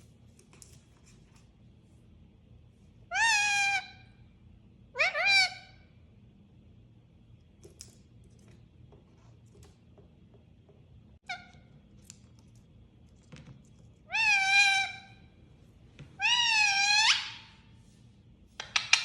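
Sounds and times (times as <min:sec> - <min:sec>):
parrot calling: 0:03.1 - 0:04.2, 0:05.0 - 0:05.8, 0:14.0 - 0:15.3, 0:16.2 - 0:17.7.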